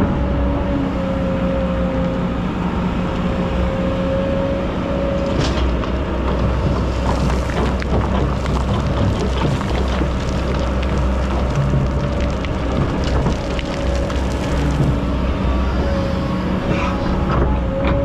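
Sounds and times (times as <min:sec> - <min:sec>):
excavator diesel engine: 0:00.0 - 0:18.0
sand and stones pouring: 0:06.5 - 0:15.2.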